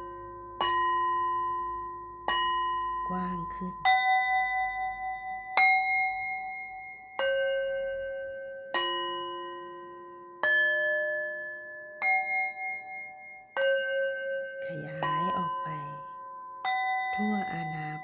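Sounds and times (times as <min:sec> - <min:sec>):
struck bell tones: 0:14.5 - 0:18.0.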